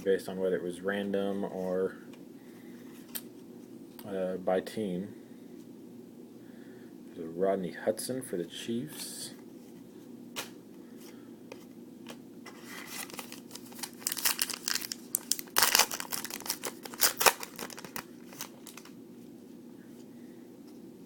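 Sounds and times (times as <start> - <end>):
foil wrapper crinkling and tearing: 12.5 - 18.9.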